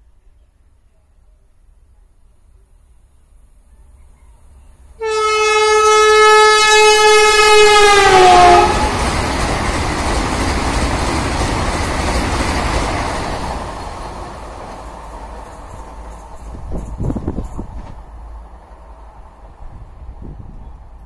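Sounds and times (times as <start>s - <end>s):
train coaches rushing past: 3.6s - 21.0s
train horn: 5.0s - 9.1s.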